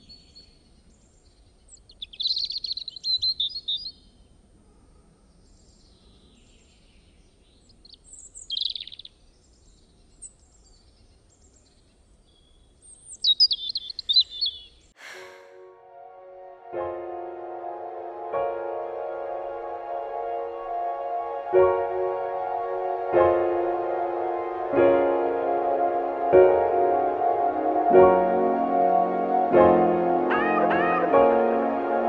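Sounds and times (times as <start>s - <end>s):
songbird chirping and trilling: 0.0s - 15.4s.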